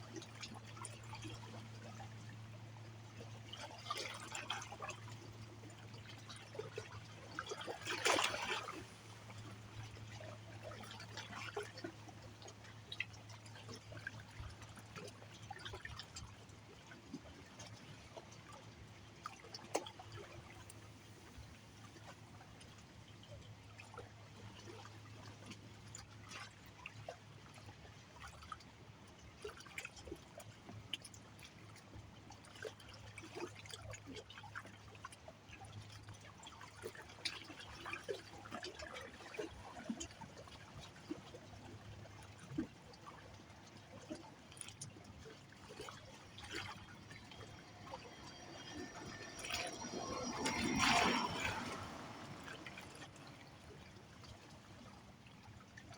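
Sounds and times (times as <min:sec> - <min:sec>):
small splashes and drips: 0:00.0 - 0:50.6
water trickling and lapping: 0:00.0 - 0:55.9
rush of water: 0:44.5 - 0:55.9.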